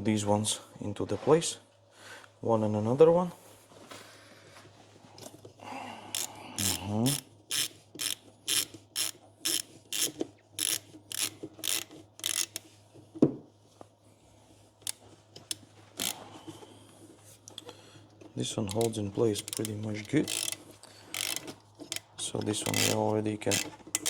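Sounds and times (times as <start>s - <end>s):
hand ratchet tightening screws: 6.1s - 12.7s, 14.8s - 16.4s, 18.6s - 24.0s.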